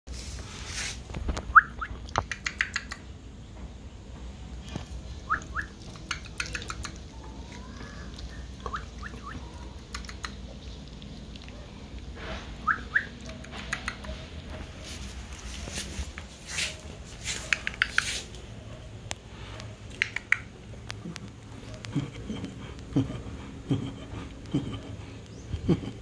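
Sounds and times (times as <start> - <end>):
sharp clicks and taps: 2.1 - 3.0, 19.0 - 22.9.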